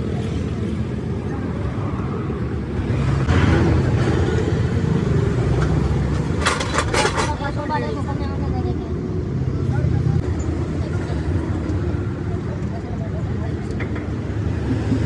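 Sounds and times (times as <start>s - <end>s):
vehicles passing: 0.0s - 15.0s
sharp clatters: 5.6s - 7.5s.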